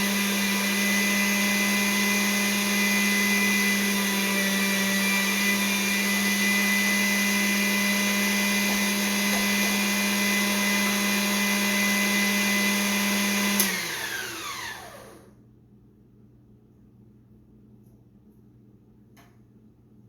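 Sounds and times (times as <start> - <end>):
electric mixer motor running: 0.0 - 15.3.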